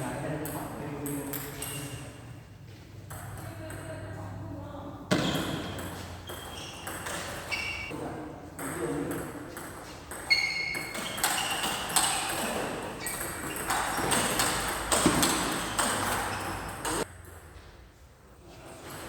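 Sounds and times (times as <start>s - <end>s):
shoe squeaks: 1.5s - 2.3s, 5.1s - 8.0s, 9.8s - 17.1s
racket hitting ball: 5.1s - 7.5s, 10.8s - 17.0s.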